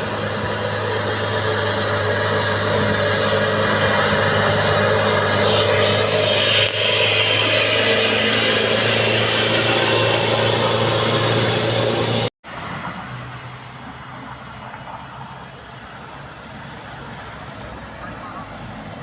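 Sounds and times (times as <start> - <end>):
engine hiss: 0.0 - 12.3
heavy truck engine running: 0.0 - 14.0
distant engine: 0.0 - 19.0
road traffic: 0.0 - 19.0.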